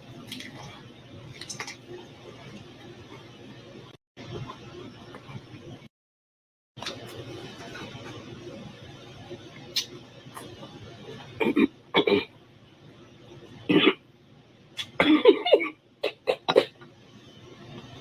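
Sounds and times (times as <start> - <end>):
woman coughing and clearing throat: 11.4 - 12.3, 13.7 - 14.0, 15.0 - 16.8.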